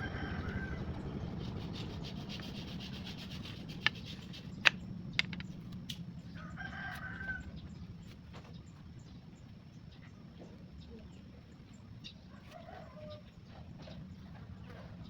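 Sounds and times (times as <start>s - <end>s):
sanding wood: 1.4s - 5.3s
sharp clicks: 3.7s - 6.0s.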